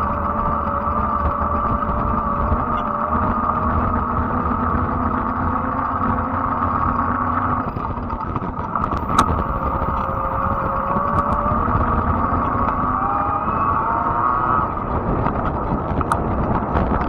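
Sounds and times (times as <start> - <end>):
electric bike motor whine: 0.0 - 17.0
wide tyres humming on road: 0.0 - 17.0
sharp click: 8.9 - 10.1.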